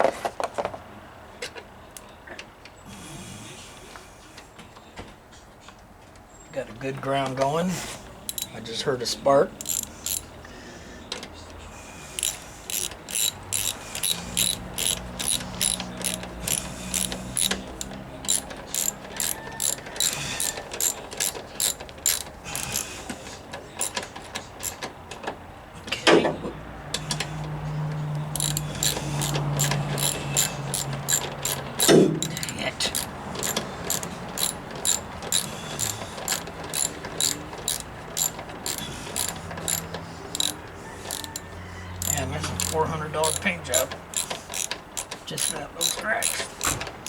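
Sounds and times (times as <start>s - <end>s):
ratchet wrench clicking: 8.2s - 8.8s, 9.5s - 10.3s, 12.1s - 23.1s, 23.8s - 24.9s, 28.1s - 46.8s.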